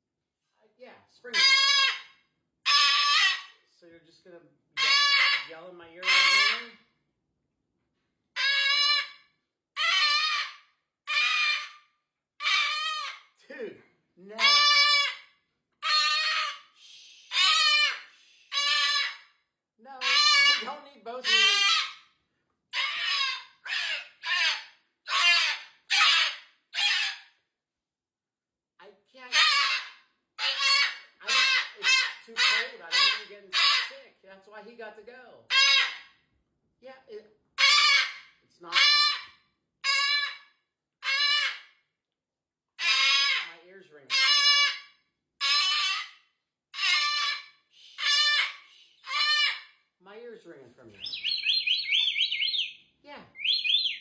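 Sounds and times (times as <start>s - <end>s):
cockatoo screeching: 1.3s - 2.1s, 2.7s - 3.6s, 4.8s - 6.8s, 8.4s - 13.4s, 14.3s - 19.4s, 20.0s - 22.1s, 22.7s - 27.3s, 29.2s - 34.0s, 35.5s - 36.2s, 37.6s - 41.8s, 42.8s - 49.8s, 51.0s - 54.0s.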